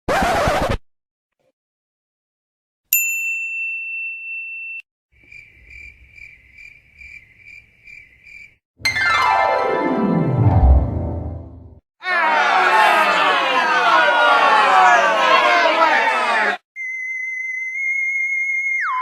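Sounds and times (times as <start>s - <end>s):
desk bell ding: 3.0s - 4.8s
crickets chirping: 5.2s - 8.6s
falling pitch musical sweep: 8.8s - 11.7s.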